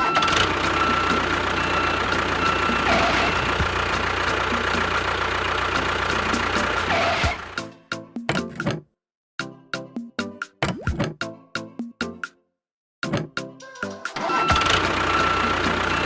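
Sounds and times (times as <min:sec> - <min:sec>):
constant whine: 0:00.0 - 0:07.6, 0:14.5 - 0:16.0
motor running: 0:00.0 - 0:07.6, 0:14.2 - 0:16.0.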